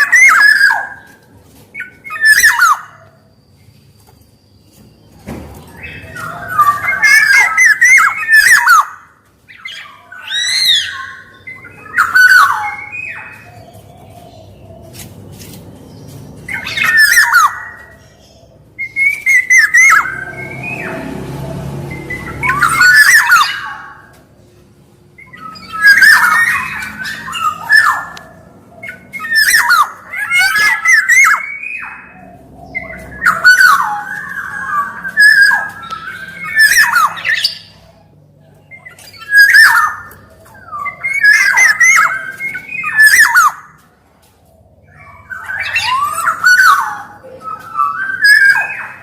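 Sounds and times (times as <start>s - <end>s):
oriole fluty whistling calls: 0.0s - 24.2s, 25.2s - 43.8s, 44.6s - 49.0s.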